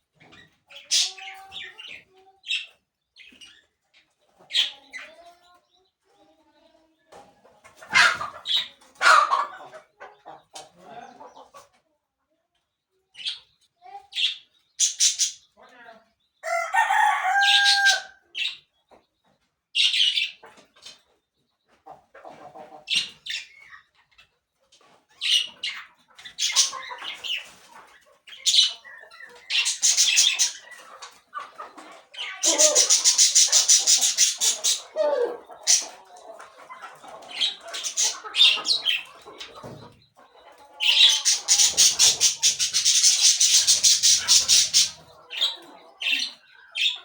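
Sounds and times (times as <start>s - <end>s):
birds chirping and squawking: 0.0s - 11.8s, 13.1s - 47.0s.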